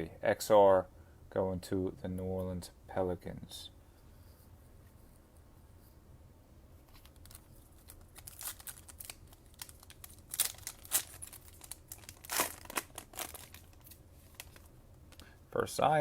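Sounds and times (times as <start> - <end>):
plastic wrapper crinkling and tearing: 6.9 - 15.2.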